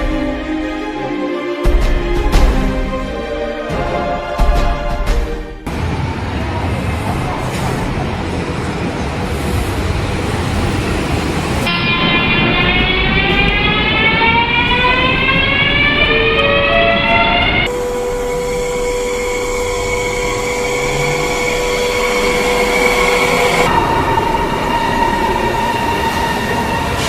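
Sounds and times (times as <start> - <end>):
rail rumble: 1.6 - 27.0
electric train motors whining: 10.0 - 27.0.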